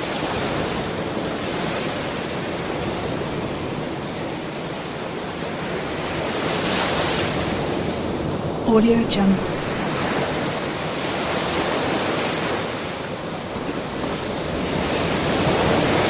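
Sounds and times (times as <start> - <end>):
ocean surf washing in: 0.0 - 16.0.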